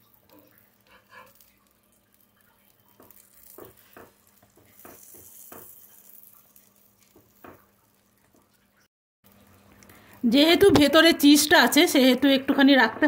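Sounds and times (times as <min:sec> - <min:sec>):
sandwich frying in a pan: 0:00.0 - 0:12.8
spatula taps and scrapes: 0:02.9 - 0:06.0, 0:07.0 - 0:08.6.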